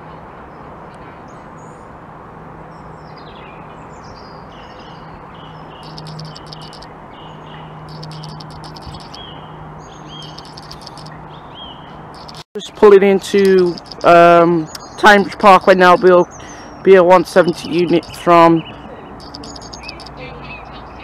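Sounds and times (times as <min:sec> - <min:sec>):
small birds chirping and whistling: 0:03.2 - 0:12.4, 0:13.6 - 0:16.8, 0:17.4 - 0:21.0.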